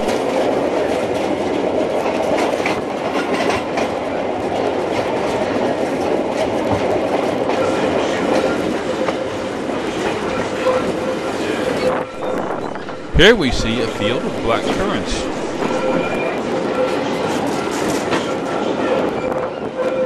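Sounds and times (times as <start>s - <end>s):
faint steady tone: 12.2s - 16.3s.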